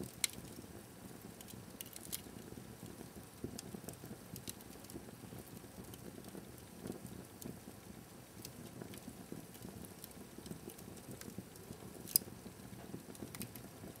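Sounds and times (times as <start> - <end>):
fire burning in fireplace: 0.0 - 14.0
fire crackling and popping: 0.0 - 14.0.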